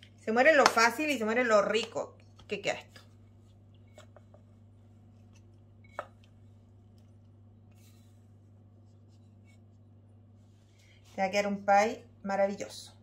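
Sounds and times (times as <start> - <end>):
faint dough scrapes: 7.6 - 11.6.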